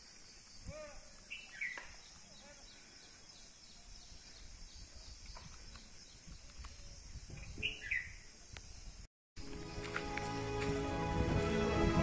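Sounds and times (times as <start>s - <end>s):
bird chirping: 0.0s - 9.0s.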